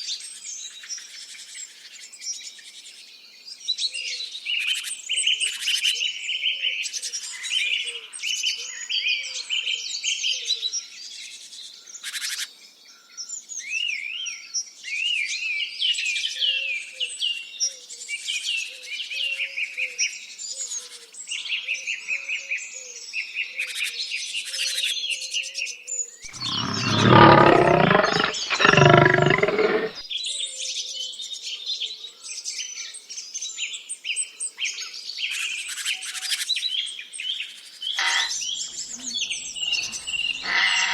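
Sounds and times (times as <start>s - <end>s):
loud long animal calls: 26.3s - 30.0s, 38.0s - 40.9s.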